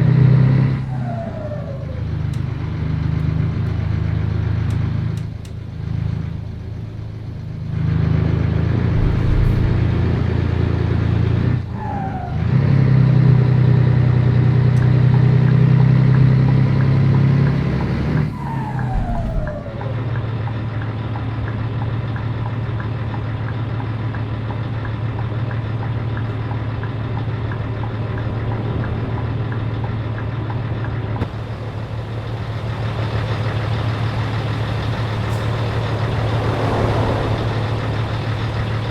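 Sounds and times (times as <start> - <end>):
truck diesel engine droning: 0.0 - 38.9
engine whine sliding down: 0.2 - 5.3, 7.7 - 14.5, 17.0 - 21.8, 26.3 - 38.9.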